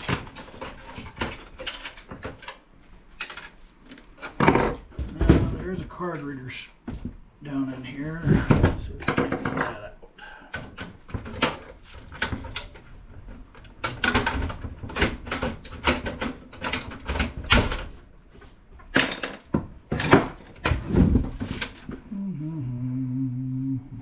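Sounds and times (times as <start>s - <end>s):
computer parts clicking and knocking: 0.0s - 6.2s, 8.5s - 18.1s, 18.8s - 22.0s
man humming: 22.0s - 24.0s.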